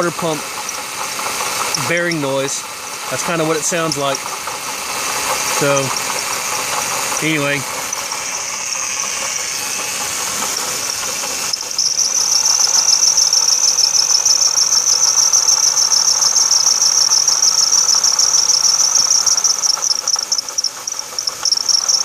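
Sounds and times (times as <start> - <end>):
faint engine running: 0.0 - 22.0
crickets chirping: 7.9 - 22.0.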